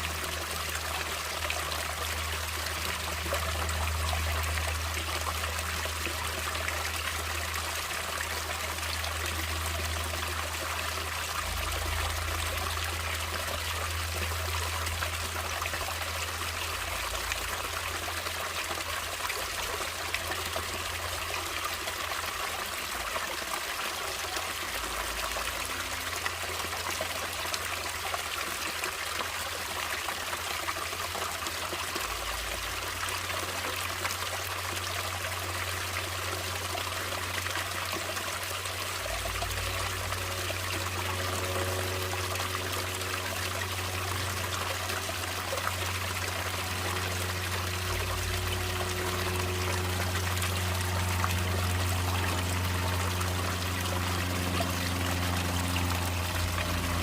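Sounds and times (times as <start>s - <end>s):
water flowing and splashing: 0.0s - 57.0s
low rumble: 39.0s - 57.0s.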